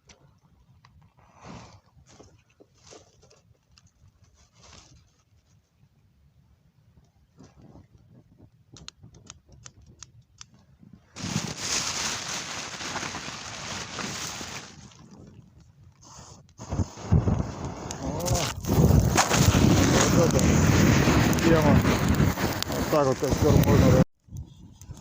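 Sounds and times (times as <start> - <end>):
campfire crackling: 8.7 - 10.6, 11.2 - 25.0.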